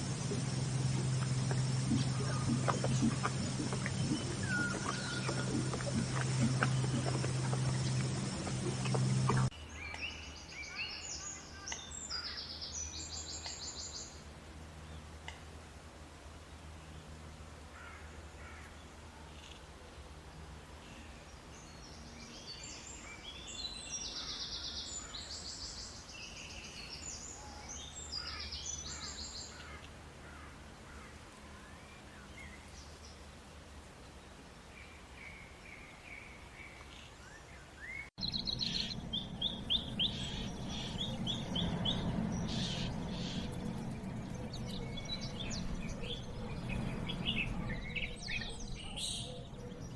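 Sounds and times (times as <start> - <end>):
birds chirping and calling: 0.0 - 10.2, 38.2 - 49.9
low steady background hum: 0.0 - 34.7, 38.2 - 49.9.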